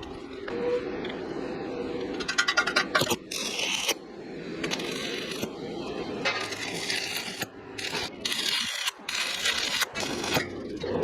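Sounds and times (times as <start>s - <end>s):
harsh scraping on metal: 6.2s - 11.0s.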